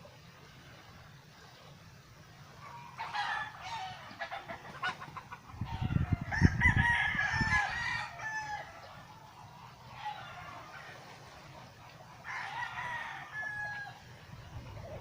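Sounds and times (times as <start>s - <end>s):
chickens clucking: 2.3s - 6.8s, 7.4s - 13.3s, 13.9s - 15.0s
rooster crowing: 2.7s - 4.4s, 5.6s - 8.9s, 12.2s - 14.1s.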